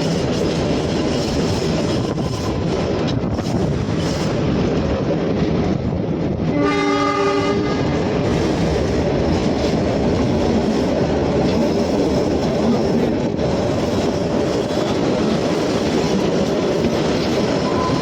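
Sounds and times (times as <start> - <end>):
train wheels clattering on rails: 0.0 - 18.0
train horn blast: 6.5 - 8.1.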